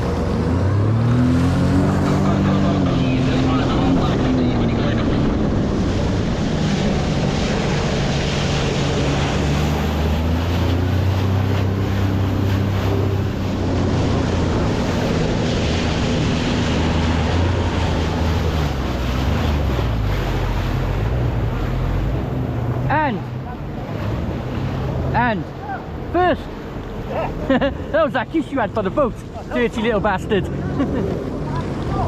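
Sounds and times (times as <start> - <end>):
boat engine running: 0.0 - 32.0
water around hull: 0.0 - 32.0
wind buffeting microphone: 2.9 - 27.0.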